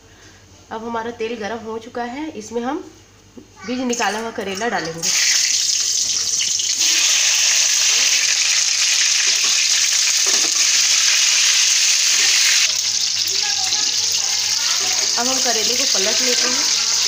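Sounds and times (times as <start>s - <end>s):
vegetables sizzling in hot oil: 5.0s - 17.0s.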